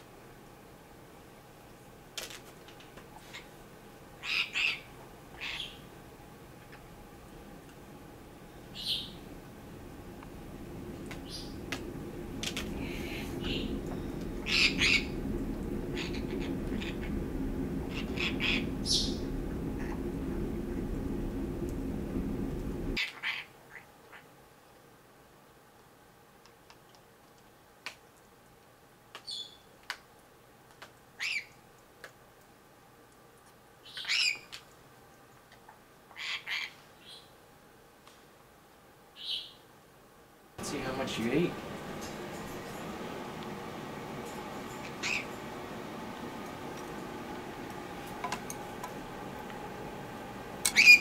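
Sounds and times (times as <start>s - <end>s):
low room hiss: 0.0s - 51.0s
parrot squawking: 4.2s - 5.9s, 14.4s - 15.2s, 15.9s - 17.2s, 17.9s - 20.0s, 23.0s - 23.8s, 36.1s - 36.8s, 44.9s - 45.3s, 50.6s - 51.0s
parrot squeak: 50.8s - 51.0s.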